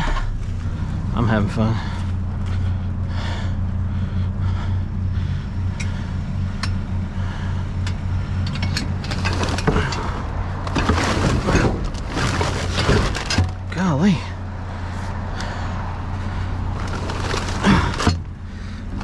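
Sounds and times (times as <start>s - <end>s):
vehicle engine idling: 0.0s - 19.0s
rustling and clattering of objects: 8.5s - 13.8s, 16.2s - 19.0s.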